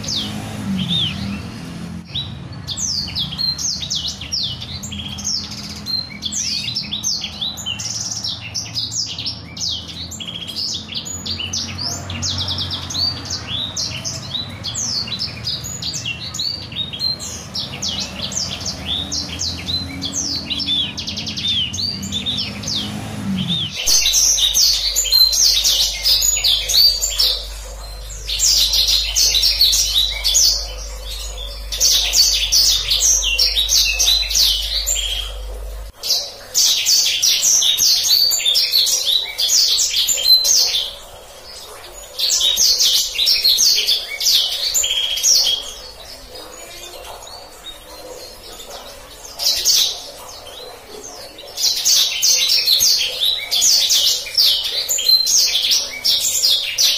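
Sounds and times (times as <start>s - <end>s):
songbird trilling: 0.0s - 41.1s.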